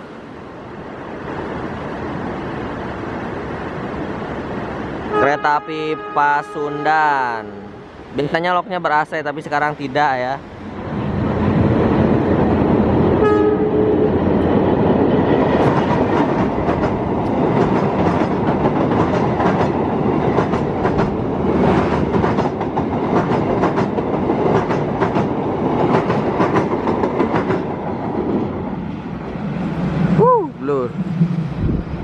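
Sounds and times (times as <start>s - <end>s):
train horn blast: 5.1s - 7.8s, 13.2s - 14.2s
train wheels clattering: 14.2s - 28.6s.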